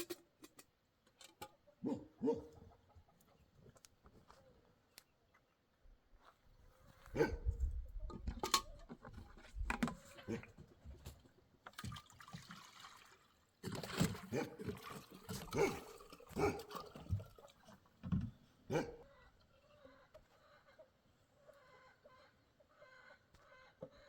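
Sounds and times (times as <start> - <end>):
water splashing and trickling: 11.0 - 18.3.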